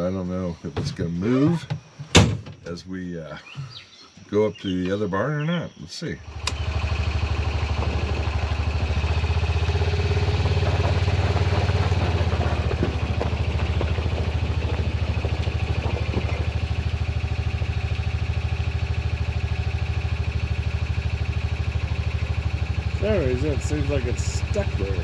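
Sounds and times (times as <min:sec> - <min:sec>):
vehicle engine droning: 0:06.2 - 0:25.0
light rattles: 0:06.3 - 0:25.0.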